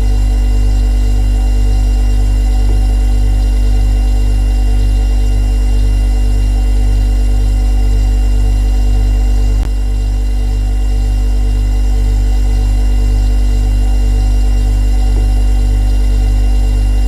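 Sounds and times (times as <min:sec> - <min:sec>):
refrigerator humming: 0:00.0 - 0:17.0.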